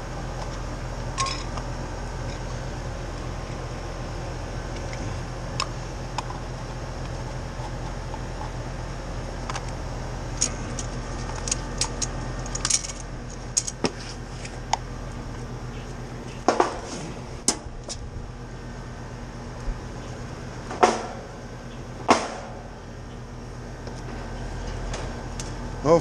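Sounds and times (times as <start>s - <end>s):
steady low hum: 0.0s - 26.0s
metal tools clinking: 1.2s - 1.6s, 10.4s - 13.8s.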